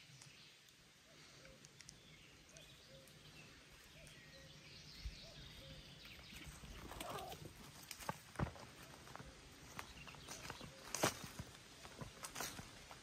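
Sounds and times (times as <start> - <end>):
distant bird calls: 0.0 - 7.6.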